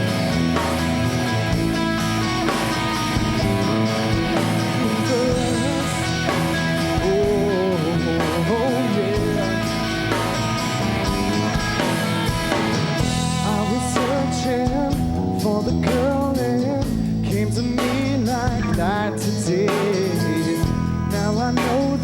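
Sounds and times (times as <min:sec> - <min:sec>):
pop-rock band playing: 0:00.0 - 0:22.0
person singing lead: 0:03.7 - 0:09.8, 0:13.4 - 0:22.0.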